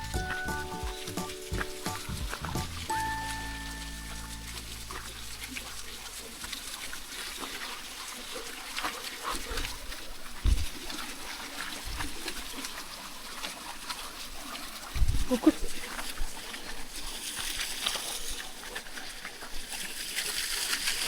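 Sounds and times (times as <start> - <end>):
footsteps on twigs and leaves: 0.0 - 5.5
thump: 10.5 - 10.7.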